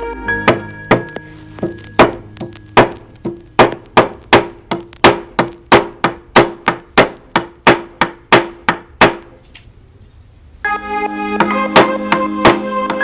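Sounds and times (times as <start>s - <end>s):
hammer striking with ring: 0.4s - 9.4s.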